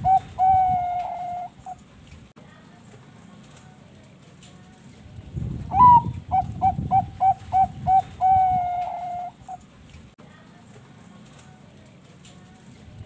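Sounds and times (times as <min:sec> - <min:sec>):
dove cooing song: 0:00.0 - 0:01.8, 0:05.7 - 0:09.6.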